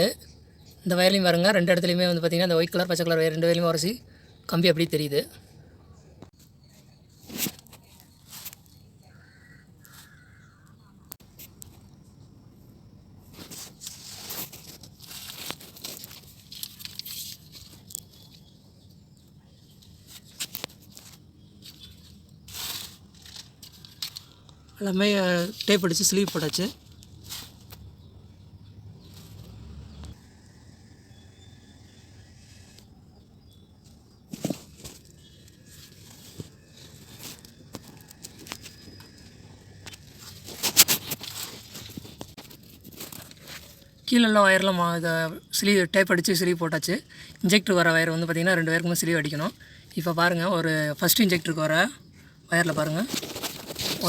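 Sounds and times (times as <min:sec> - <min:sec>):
plastic crinkling: 0:13.4 - 0:18.5, 0:52.8 - 0:54.0.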